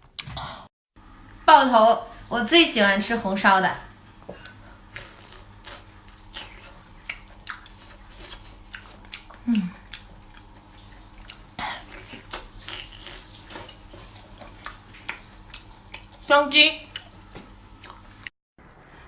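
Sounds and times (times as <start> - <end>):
person chewing and biting food: 4.4 - 16.3, 16.9 - 18.3
person humming: 9.4 - 9.8.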